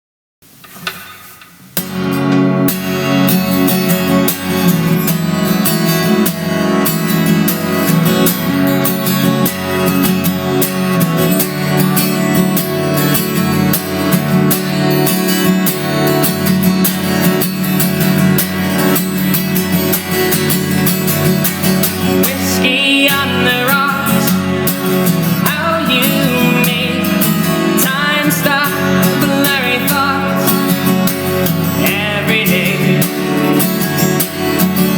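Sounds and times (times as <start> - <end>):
acoustic guitar strumming: 0.5 - 34.9.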